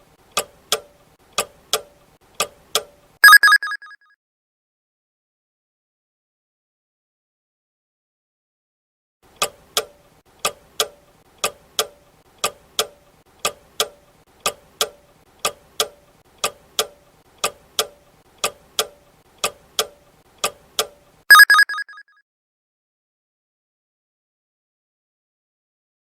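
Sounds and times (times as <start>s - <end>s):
clock ticking: 9.4s - 21.9s
ringing alarm bell: 21.3s - 22.0s.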